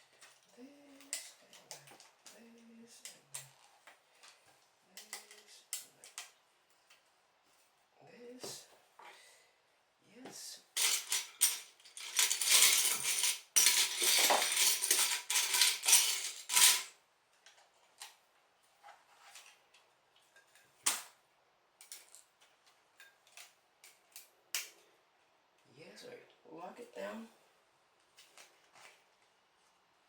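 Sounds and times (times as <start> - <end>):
plastic toy bricks clattering: 10.8 - 17.0.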